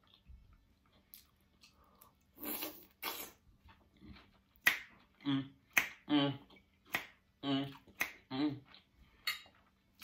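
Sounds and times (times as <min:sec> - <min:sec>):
person chewing food: 0:00.0 - 0:10.0
mouth noises: 0:04.6 - 0:08.9.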